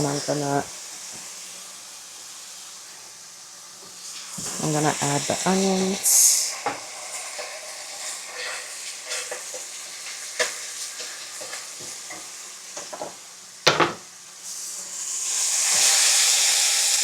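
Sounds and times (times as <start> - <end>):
onions and shrimp sizzling in a pan: 0.0 - 17.0
utensil scraping a pan: 6.7 - 12.2.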